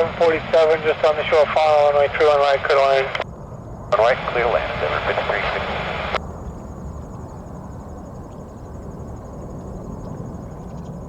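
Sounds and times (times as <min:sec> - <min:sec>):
low outdoor rumble: 0:00.0 - 0:11.0
crickets trilling: 0:06.2 - 0:11.0.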